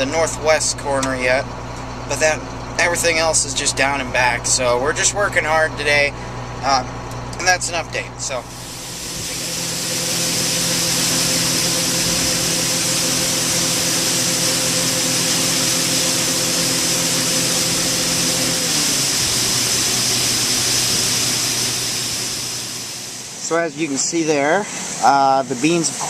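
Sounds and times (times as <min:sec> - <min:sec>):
auger drive hum: 0:00.0 - 0:24.0
beans pouring hiss: 0:08.5 - 0:12.0.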